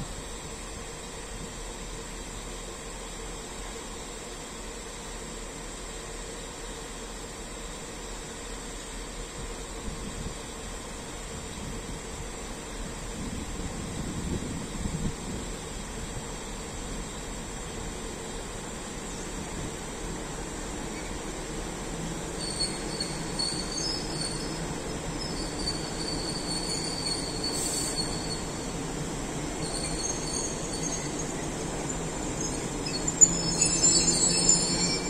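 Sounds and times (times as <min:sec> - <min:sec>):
wheels squealing: 0:22.4 - 0:28.7, 0:29.6 - 0:35.0.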